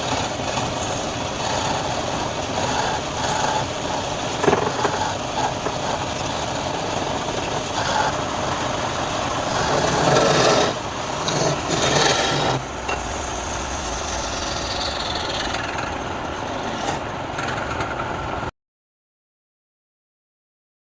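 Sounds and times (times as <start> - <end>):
wood lathe scraping wood: 0.0 - 18.4.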